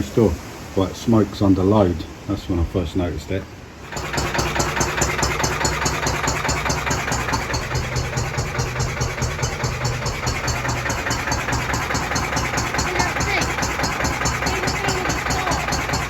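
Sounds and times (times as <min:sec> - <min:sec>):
diesel engine running: 0:03.8 - 0:16.0.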